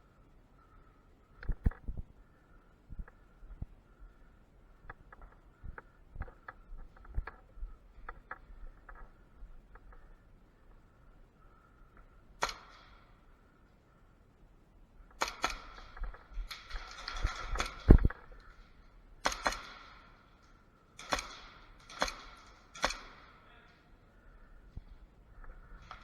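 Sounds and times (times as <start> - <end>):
airsoft pistol shots: 15.2 - 18.1, 19.2 - 20.1.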